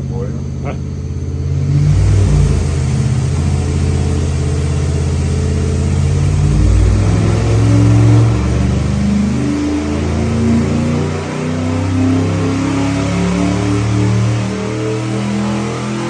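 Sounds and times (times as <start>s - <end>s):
engine revving on dynamometer: 0.0s - 16.0s.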